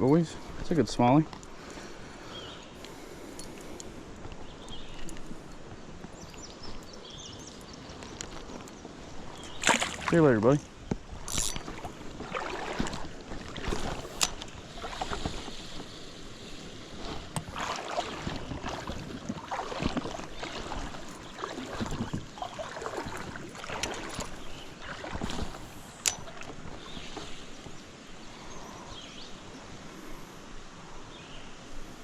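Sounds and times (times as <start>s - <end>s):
creek water running and splashing: 0.1s - 31.6s.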